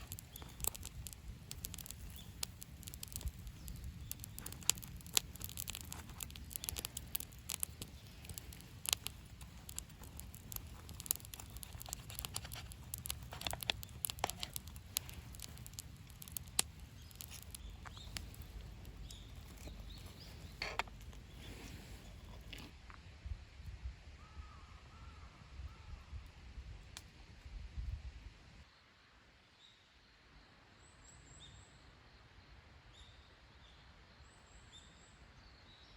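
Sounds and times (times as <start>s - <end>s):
campfire crackling: 0.0s - 22.8s.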